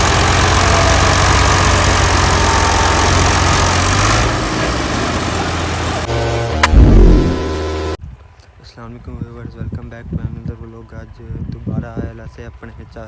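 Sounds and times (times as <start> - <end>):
tractor engine straining: 0.0 - 6.3
sharp knock: 6.6 - 7.4
heavy thud: 6.6 - 7.5.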